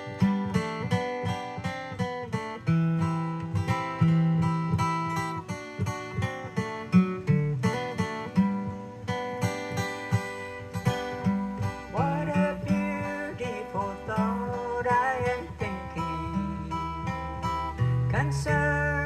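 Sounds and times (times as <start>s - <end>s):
acoustic guitar picking and strumming: 0.0s - 19.0s
person singing: 11.9s - 19.0s.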